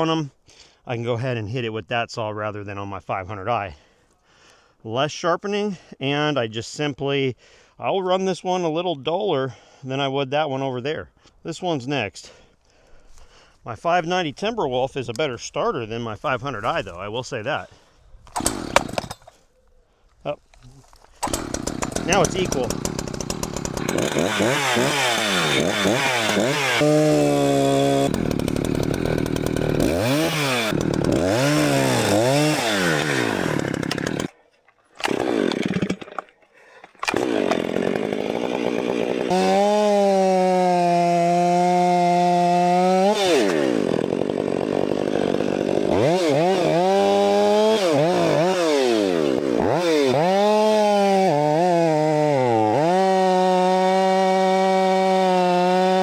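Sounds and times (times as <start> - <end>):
chainsaw engine revving: 18.3 - 19.4, 21.2 - 34.3, 35.0 - 56.0.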